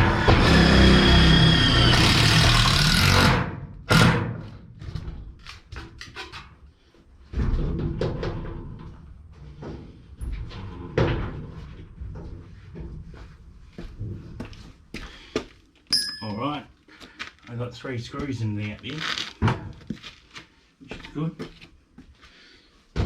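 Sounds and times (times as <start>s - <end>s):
power drill driving screws into metal: 0.0s - 4.4s.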